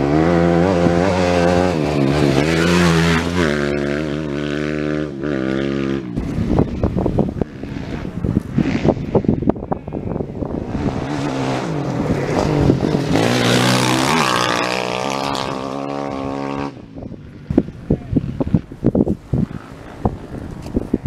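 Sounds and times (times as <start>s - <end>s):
motorcycle engine revving: 0.0s - 21.0s
wind buffeting microphone: 5.3s - 21.0s.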